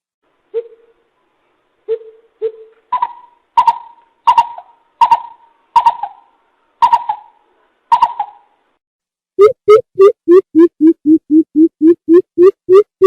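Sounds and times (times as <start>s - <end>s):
bird hooting calls: 0.5s - 1.0s, 1.9s - 8.5s.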